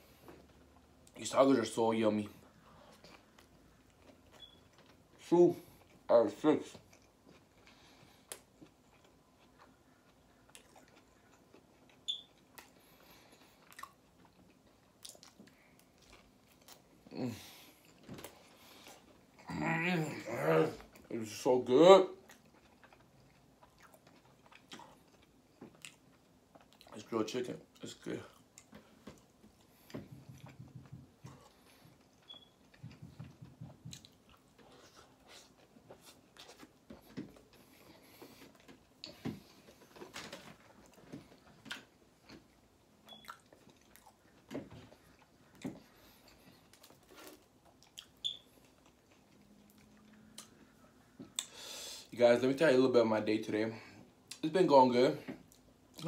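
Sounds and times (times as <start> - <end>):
person chewing: 6.8 - 19.5, 22.2 - 27.0, 27.7 - 51.8
mouth clicks and smacks: 51.2 - 51.6.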